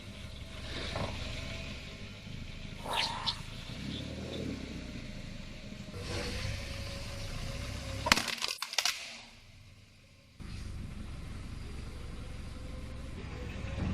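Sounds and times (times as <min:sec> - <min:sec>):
car engine rumbling: 0:00.0 - 0:08.2, 0:09.3 - 0:13.9
tyre crushing something brittle: 0:08.1 - 0:09.1.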